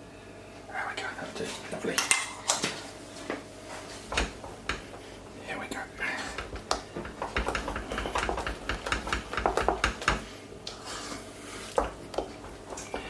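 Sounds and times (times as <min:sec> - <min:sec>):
utensil scraping saucepan: 0:06.1 - 0:11.9.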